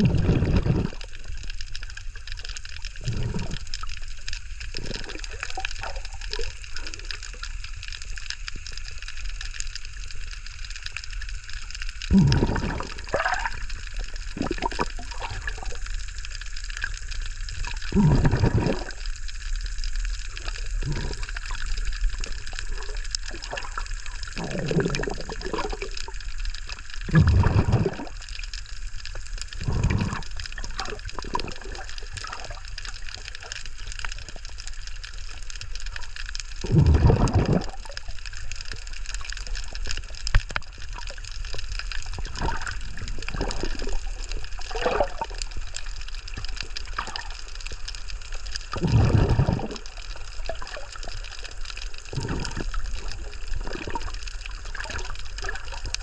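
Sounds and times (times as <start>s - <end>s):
bubbling exhaled breath underwater: 0.0s - 56.0s
steady water hiss: 0.0s - 56.0s
faint clicks: 28.2s - 36.7s, 37.7s - 48.8s.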